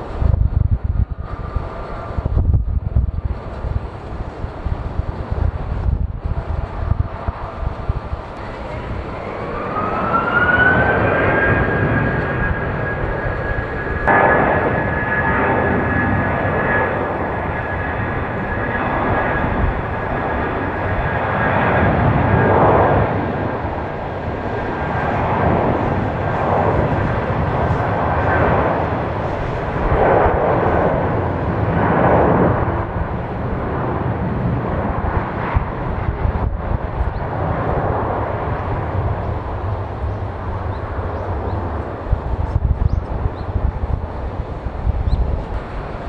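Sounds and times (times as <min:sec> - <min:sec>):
jet engines roaring: 0:00.0 - 0:46.0
faint high whine: 0:07.5 - 0:22.5.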